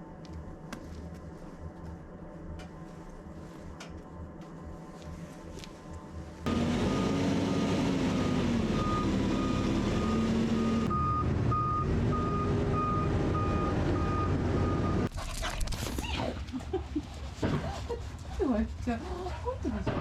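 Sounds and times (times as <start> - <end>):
heavy vehicle engine running: 6.4 - 15.1
reverse alarm beeping: 8.2 - 15.1.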